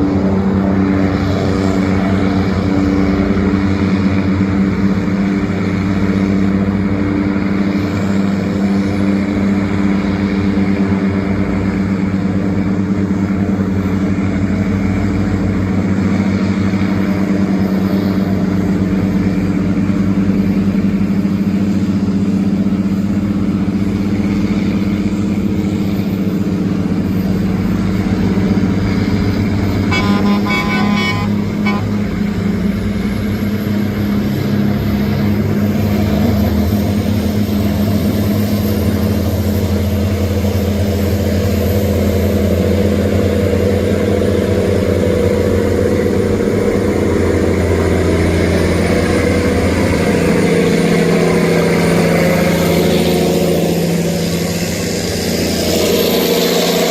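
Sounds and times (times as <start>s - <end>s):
boat engine droning: 0.0s - 56.9s
boat horn: 29.8s - 32.5s.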